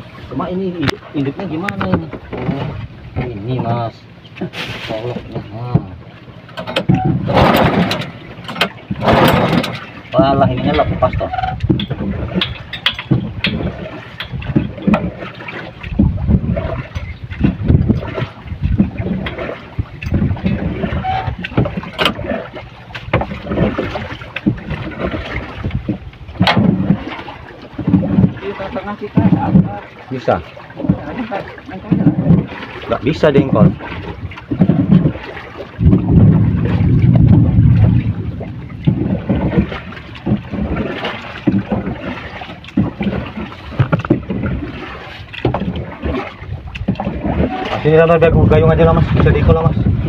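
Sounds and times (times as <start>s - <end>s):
hull knocks and splashes: 0.0s - 50.0s
water noise around boat: 0.0s - 50.0s
wind rumbling on microphone: 0.0s - 50.0s
knocks and clatter from handling: 4.3s - 16.2s, 18.8s - 22.2s, 22.9s - 27.2s, 42.6s - 44.5s, 45.2s - 45.8s.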